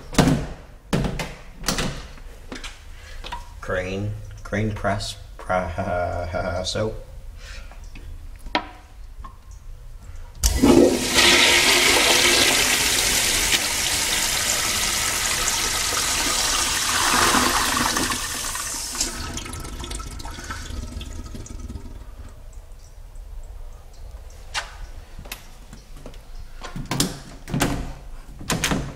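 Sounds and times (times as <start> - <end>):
toilet water rushing: 10.4 - 22.7.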